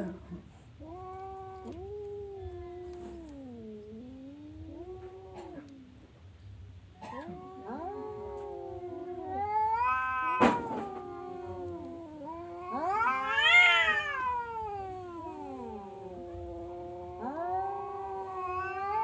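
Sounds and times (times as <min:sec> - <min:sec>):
cat yowling: 0:07.0 - 0:19.0.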